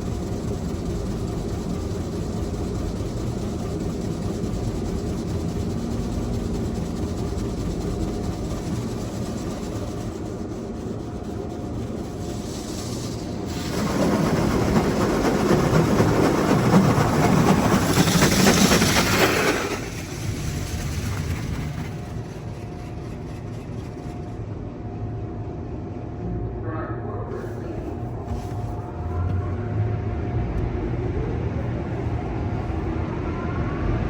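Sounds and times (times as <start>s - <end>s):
car wash mechanical hum: 0.0s - 34.0s.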